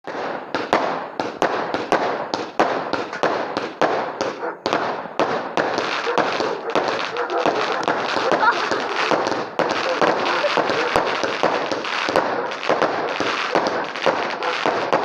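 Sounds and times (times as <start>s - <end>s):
fireworks bangs: 0.0s - 15.0s
fireworks crackling: 0.0s - 15.0s.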